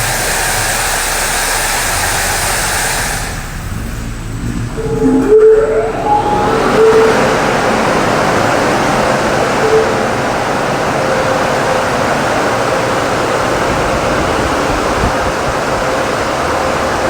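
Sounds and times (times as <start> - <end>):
high-pressure water spraying: 0.0 - 4.5.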